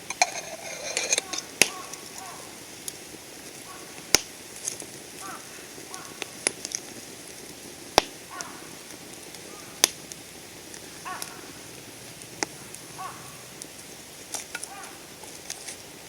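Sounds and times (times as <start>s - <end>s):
campfire crackling and popping: 0.0s - 16.0s
bird calling: 1.1s - 2.6s, 3.6s - 4.2s, 5.2s - 6.4s, 8.3s - 8.8s, 9.4s - 9.9s, 10.9s - 11.8s, 12.4s - 13.6s, 14.6s - 15.2s.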